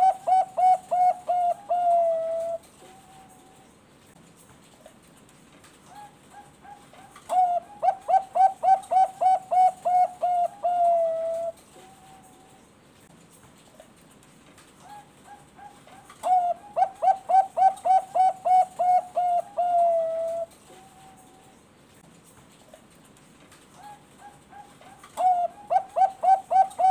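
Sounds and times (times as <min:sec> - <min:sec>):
dove cooing: 0:00.0 - 0:03.6, 0:05.9 - 0:12.4, 0:14.8 - 0:21.5, 0:23.8 - 0:26.9.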